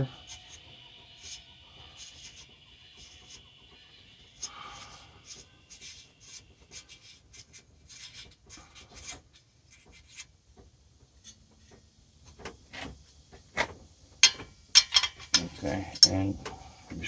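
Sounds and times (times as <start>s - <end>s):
sharp metal clack: 14.2s - 16.2s
metal tools scraping: 14.2s - 16.3s.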